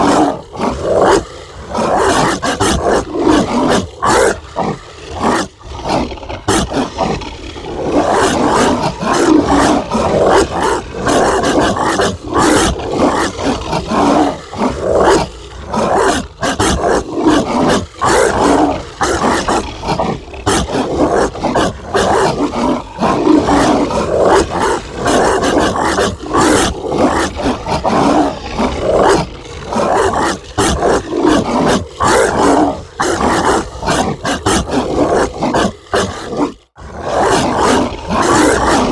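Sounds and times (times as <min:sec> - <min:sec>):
dog barking and snarling: 0:00.0 - 0:38.9.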